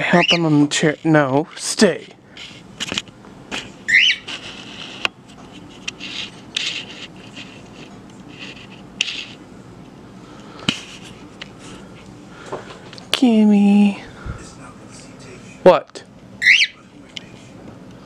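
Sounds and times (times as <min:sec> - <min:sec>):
scraping and rustling: 0:00.3 - 0:09.4
bird rising chirp: 0:03.9 - 0:04.3, 0:16.4 - 0:16.8.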